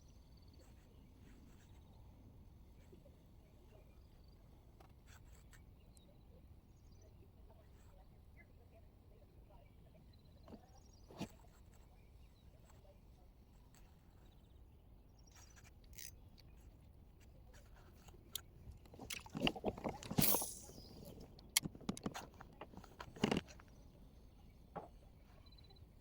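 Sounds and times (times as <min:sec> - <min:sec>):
brief swish: 0:20.2 - 0:21.0.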